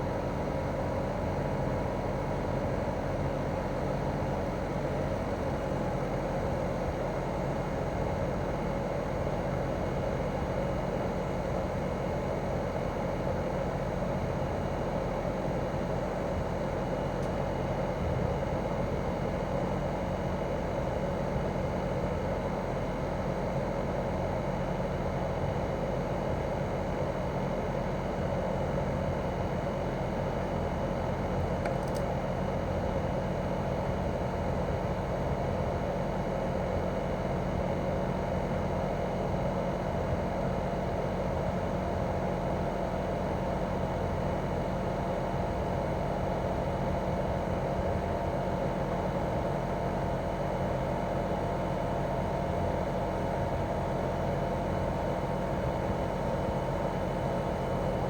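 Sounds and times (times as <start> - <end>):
air conditioner unit humming: 0.0 - 58.0.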